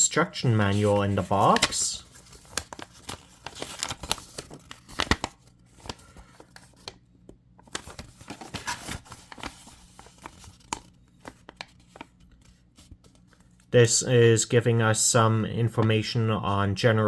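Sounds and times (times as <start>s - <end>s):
paper and cardboard rustling: 0.0s - 13.6s.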